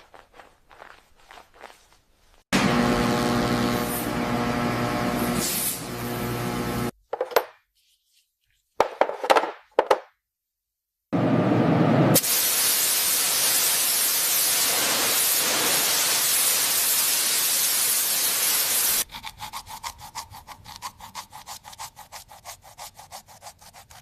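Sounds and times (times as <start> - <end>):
loud steady hiss: 12.2 - 19.0.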